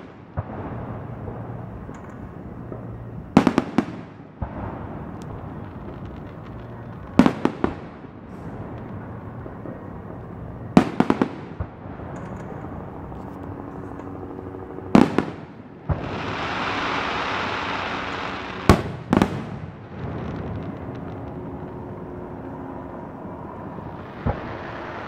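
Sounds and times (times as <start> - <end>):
firework shells bursting with bangs: 14.9 - 25.0
firework hiss: 15.9 - 21.7.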